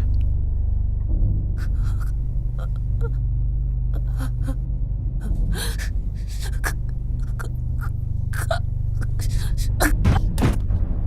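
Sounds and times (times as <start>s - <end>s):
person gasping breaths: 5.3s - 7.5s, 9.0s - 9.8s.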